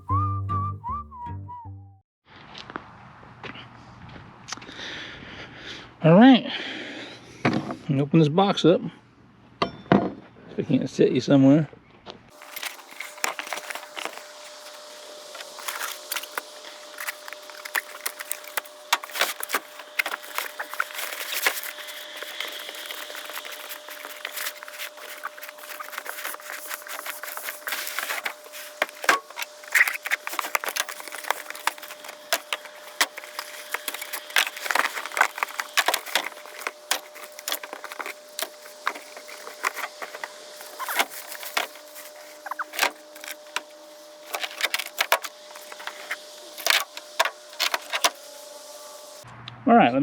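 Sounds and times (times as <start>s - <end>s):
rustling of cardboard and packing: 12.3s - 49.2s
faint steady hum: 12.3s - 49.6s
cardboard box clicks and knocks: 17.0s - 43.7s.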